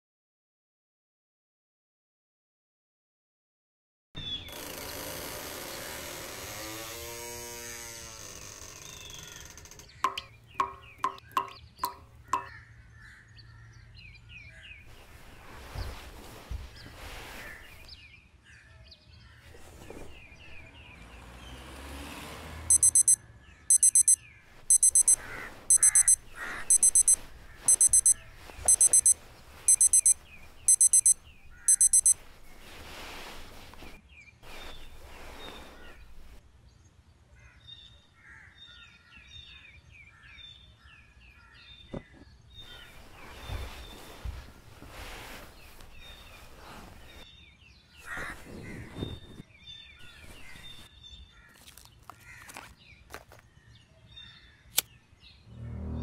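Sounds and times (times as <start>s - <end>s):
alarm clock beeping: 10.1s - 12.5s, 22.7s - 32.2s
faint birds chirping: 22.7s - 55.5s.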